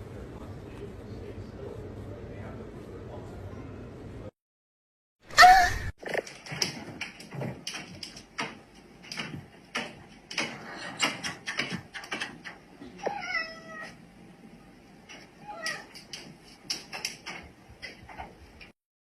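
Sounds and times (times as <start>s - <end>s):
knocks and clicks: 6.0s - 13.2s, 15.0s - 18.8s
cat meowing: 13.0s - 14.0s.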